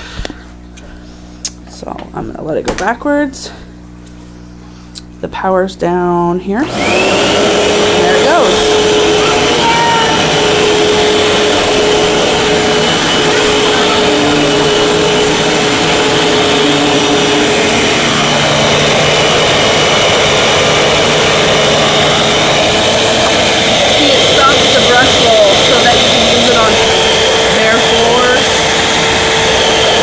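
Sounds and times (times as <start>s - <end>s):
vacuum cleaner motor whine: 6.6s - 30.0s.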